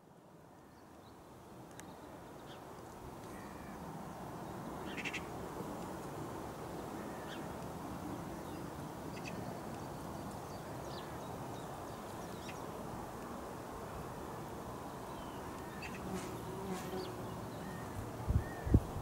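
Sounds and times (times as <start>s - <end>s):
faint high bird calls: 4.8s - 5.3s.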